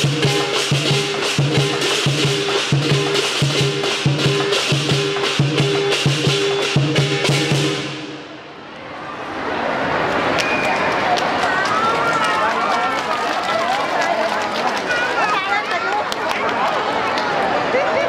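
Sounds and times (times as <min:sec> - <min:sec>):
drum beating: 0:00.0 - 0:08.4
cymbals crashing: 0:00.0 - 0:08.5.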